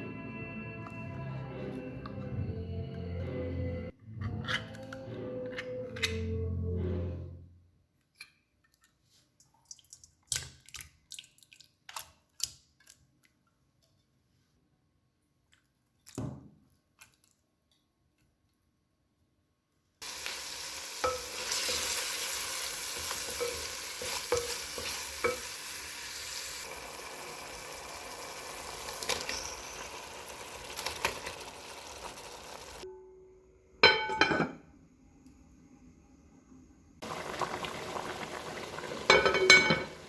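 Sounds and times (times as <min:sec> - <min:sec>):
food sizzling in a frying pan: 0:20.0 - 0:32.8, 0:37.0 - 0:40.0.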